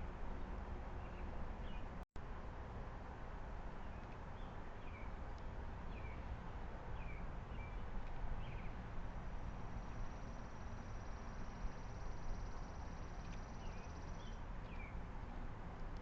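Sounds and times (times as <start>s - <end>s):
outdoor background noise: 0.0s - 16.0s
small bird chirping: 9.8s - 15.0s.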